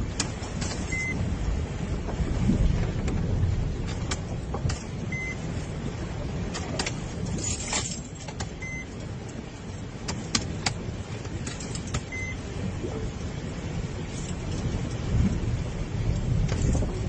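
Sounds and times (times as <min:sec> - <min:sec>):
vehicle rumble: 0:00.0 - 0:17.0
short high beep: 0:00.9 - 0:01.2.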